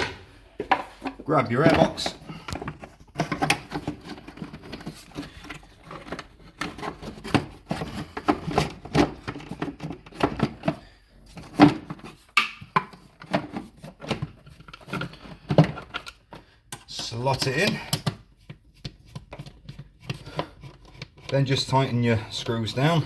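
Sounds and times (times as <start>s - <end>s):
plastic parts knocking and clicking: 0.0s - 21.8s.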